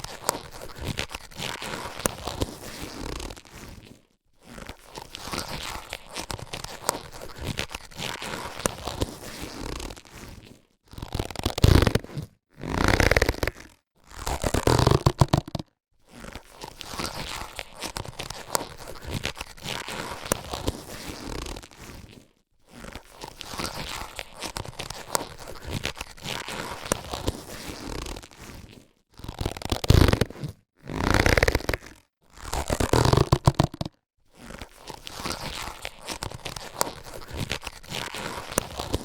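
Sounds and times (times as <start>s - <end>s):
latex gloves rustling: 0.0s - 13.7s, 14.4s - 39.0s.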